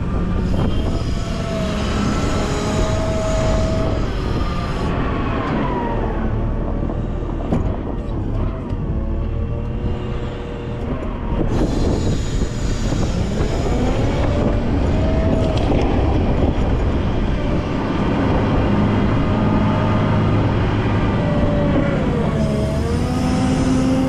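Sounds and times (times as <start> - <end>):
engine whine: 0.0 - 24.0
wheel loader diesel engine: 0.0 - 24.0.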